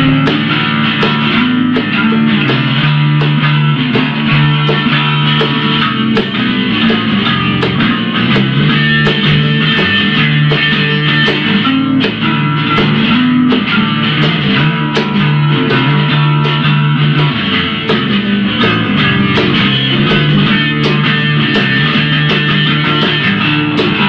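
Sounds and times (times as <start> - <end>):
guitar chords: 0.0 - 24.0
steady drum beat: 0.0 - 24.0.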